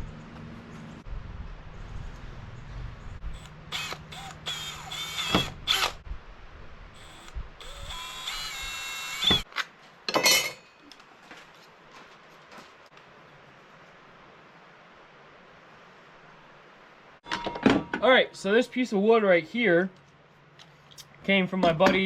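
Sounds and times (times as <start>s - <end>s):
low steady hum: 0.0s - 9.4s
electric drill whining: 3.4s - 6.0s, 7.0s - 9.5s.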